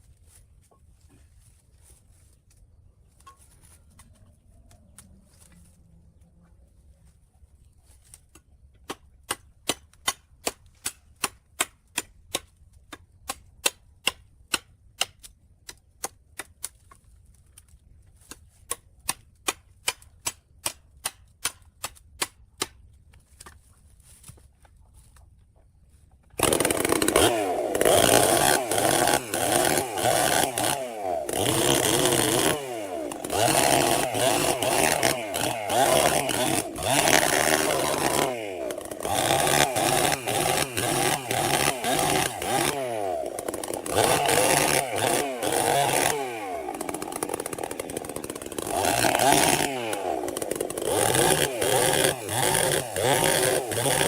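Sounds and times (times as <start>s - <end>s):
chainsaw revving: 26.4s - 54.0s.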